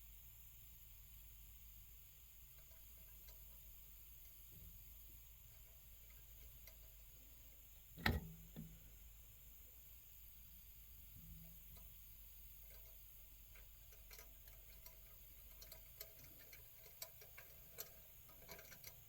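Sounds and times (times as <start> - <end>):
small metal parts clicking: 11.4 - 19.0.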